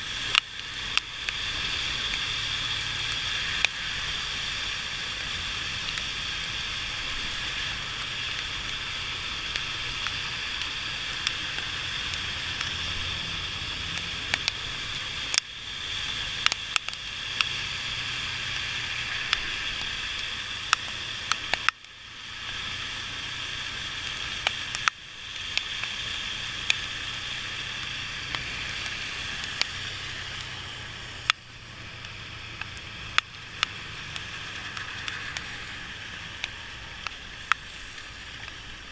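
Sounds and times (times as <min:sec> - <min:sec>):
wet tyres hissing: 0:00.0 - 0:38.9
sharp ticks: 0:08.0 - 0:17.6, 0:18.5 - 0:22.0, 0:24.0 - 0:38.6.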